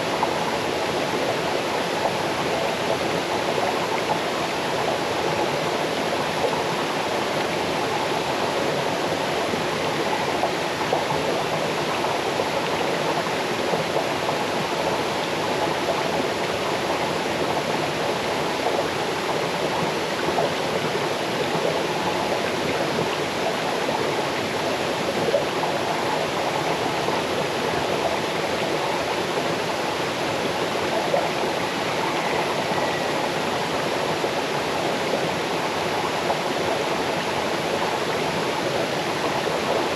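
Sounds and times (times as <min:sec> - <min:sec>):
water rushing over stones: 0:00.0 - 0:39.9.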